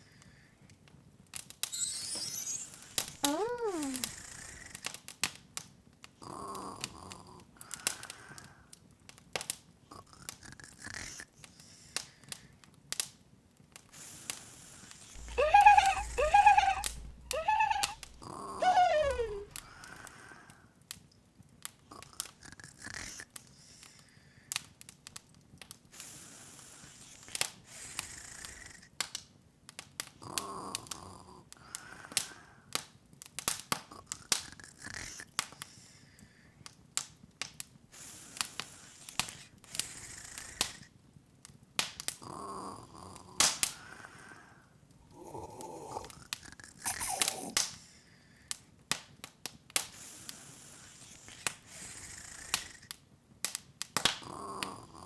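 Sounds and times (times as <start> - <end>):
high squeaky vocal sounds: 1.7 - 4.2, 15.2 - 19.8, 46.9 - 47.6.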